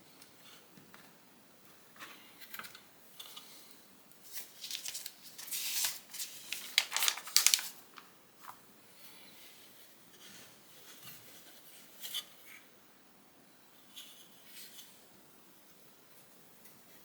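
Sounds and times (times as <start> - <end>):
rustling: 4.3 - 8.6.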